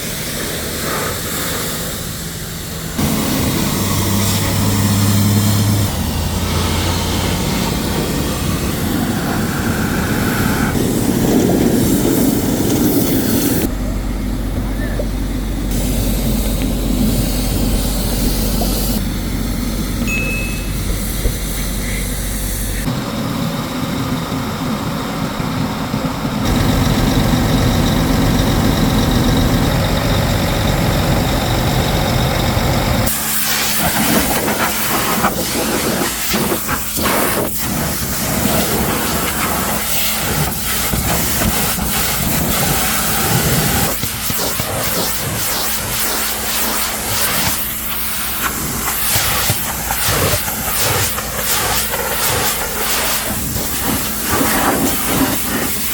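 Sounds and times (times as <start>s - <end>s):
low motor hum: 1.8s - 35.3s
water spray hissing: 15.7s - 19.0s, 33.1s - 55.9s.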